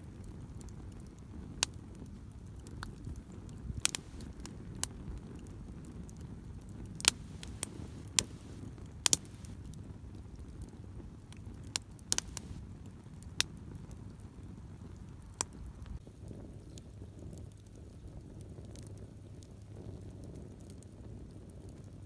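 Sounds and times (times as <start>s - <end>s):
campfire crackling and popping: 0.0s - 22.0s
low steady rumble: 3.7s - 4.4s, 7.0s - 9.6s, 12.2s - 12.6s.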